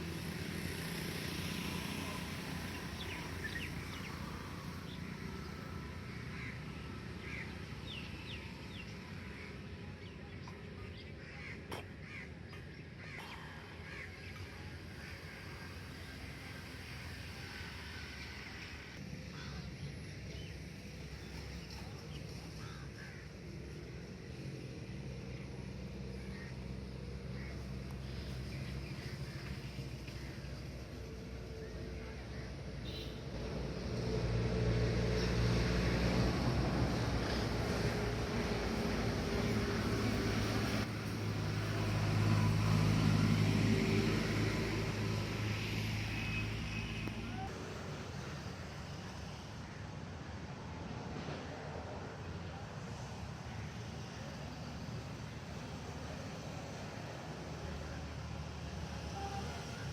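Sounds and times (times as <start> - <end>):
engine hum: 0.0 - 59.9
birds chirping: 1.9 - 16.1.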